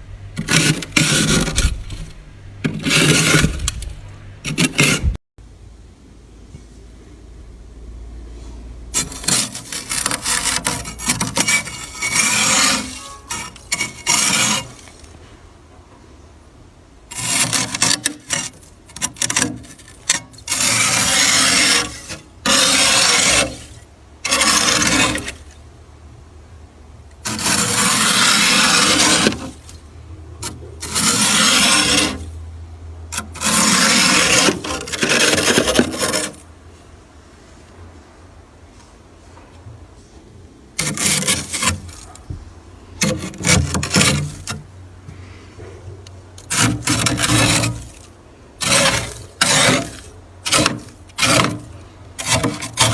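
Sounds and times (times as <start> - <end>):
frost being scraped in freezer: 0.4 - 5.2, 8.9 - 15.2, 17.1 - 25.6, 27.2 - 29.8, 30.4 - 32.4, 33.1 - 36.5, 40.8 - 42.3, 43.0 - 44.7, 46.4 - 52.9.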